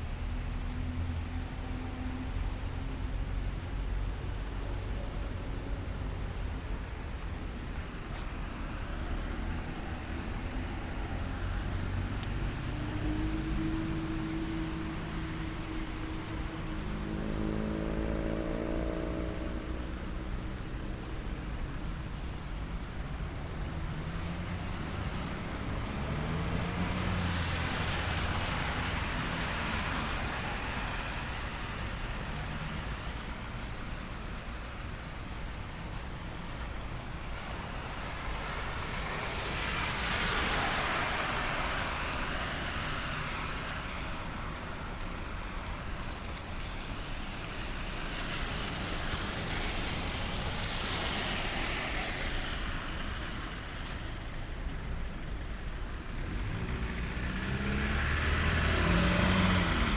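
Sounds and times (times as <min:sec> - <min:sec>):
city traffic: 0:00.0 - 0:59.9
steady rain: 0:00.0 - 0:59.9
tyres hissing on wet road: 0:00.0 - 0:59.9
vehicle engine passing: 0:56.5 - 0:59.9.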